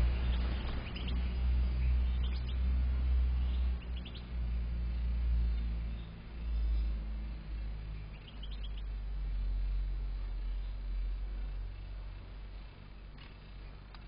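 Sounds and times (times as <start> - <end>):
goldfinch chirps: 0.0 - 11.2
steady low rumble: 0.0 - 14.0.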